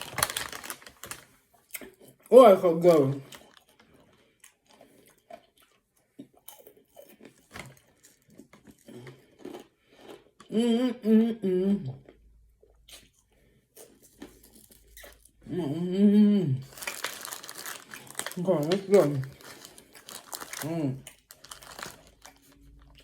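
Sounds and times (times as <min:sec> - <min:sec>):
person chewing crispy snack: 0:00.0 - 0:02.3, 0:02.9 - 0:10.5, 0:12.0 - 0:15.4, 0:16.6 - 0:23.0
person humming: 0:10.5 - 0:12.0, 0:15.4 - 0:16.7.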